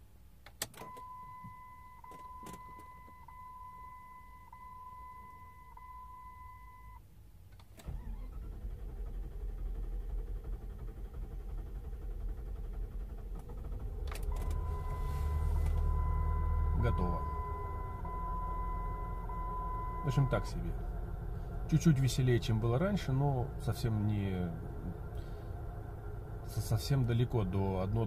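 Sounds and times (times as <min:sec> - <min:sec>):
dashboard warning beep: 0:00.8 - 0:07.0, 0:14.2 - 0:20.6
starter motor cranking engine: 0:07.7 - 0:16.7.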